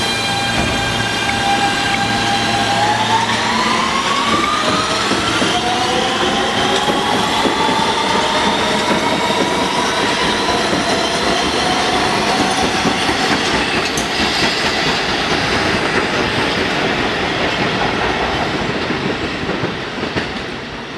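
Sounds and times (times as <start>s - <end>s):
train motors whining: 0.0s - 14.0s
wheels running on rails: 0.0s - 20.9s.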